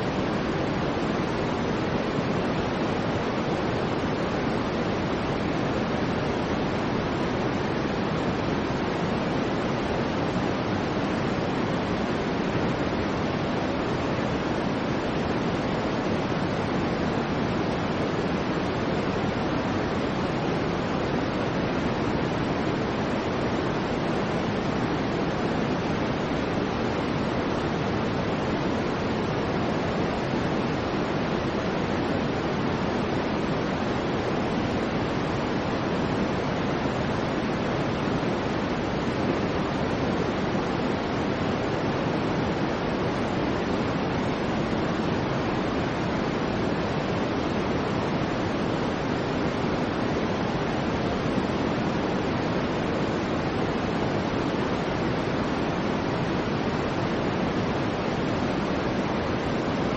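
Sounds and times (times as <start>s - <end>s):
soft white noise hiss: 0.0s - 59.9s.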